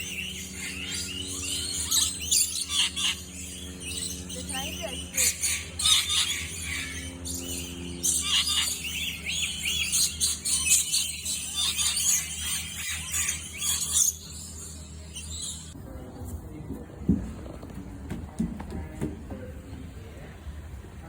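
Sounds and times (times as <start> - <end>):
bird repeated arching notes: 0.0 - 15.8
birds chirping and squealing: 0.0 - 15.8.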